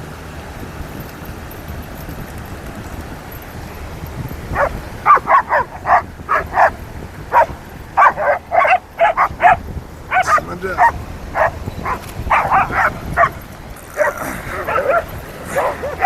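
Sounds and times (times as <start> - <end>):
steady background noise: 0.0 - 16.0
dog barking: 4.6 - 16.0.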